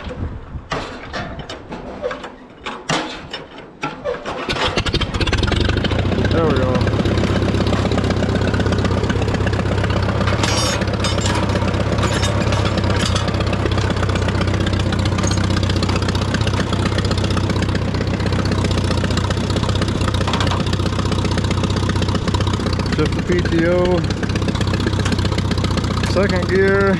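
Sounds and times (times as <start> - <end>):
tractor engine idling: 2.0 - 26.9.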